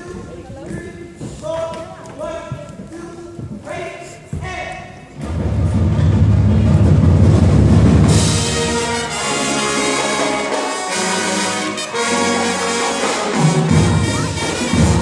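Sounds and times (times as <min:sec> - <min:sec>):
bass and drums: 0:05.2 - 0:09.0, 0:13.3 - 0:15.0
brass band playing: 0:05.2 - 0:15.0.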